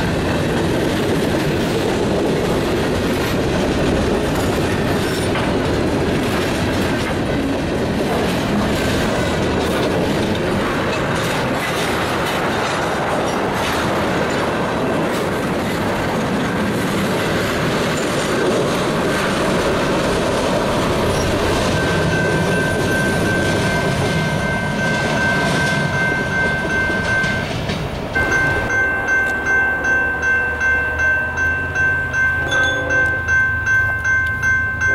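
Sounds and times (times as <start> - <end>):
train wheels rumbling on rails: 0.0 - 34.9
wheels squealing against rail: 4.4 - 5.6, 21.0 - 25.8, 32.3 - 33.3.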